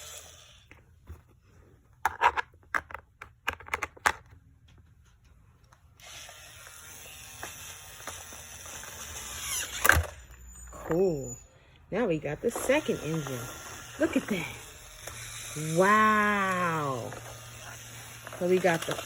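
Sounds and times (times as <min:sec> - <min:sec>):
toy drill whirring: 0:00.0 - 0:00.8, 0:05.9 - 0:19.0.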